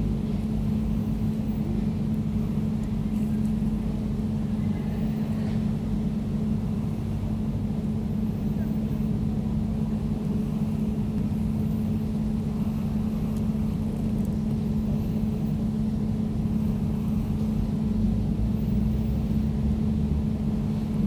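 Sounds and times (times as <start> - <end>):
air conditioner drone: 0.0 - 21.0.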